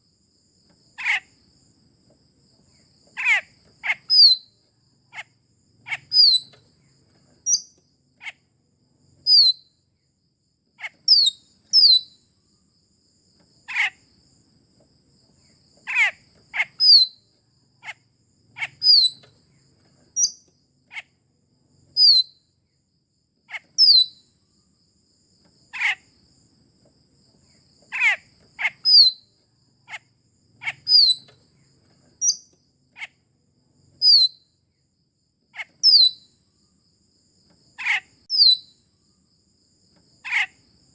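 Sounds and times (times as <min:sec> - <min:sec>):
starlings squeaky calls: 0:05.9 - 0:06.6, 0:18.6 - 0:19.3, 0:28.0 - 0:29.2, 0:30.6 - 0:31.3, 0:35.6 - 0:36.2.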